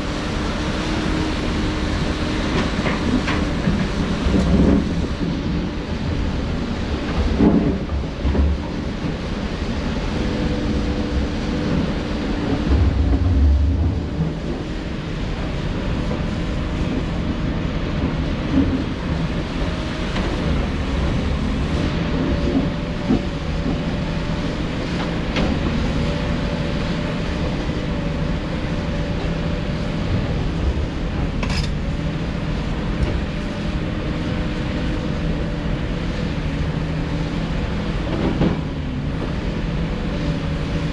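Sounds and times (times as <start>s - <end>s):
diesel engine running: 0.0s - 40.9s
deep rumbles: 11.1s - 16.3s.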